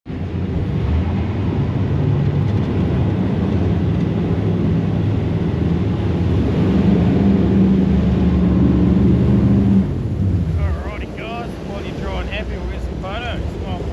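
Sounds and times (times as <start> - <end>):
boat engine droning: 0.2 - 13.9
higher steady tone: 10.0 - 13.9.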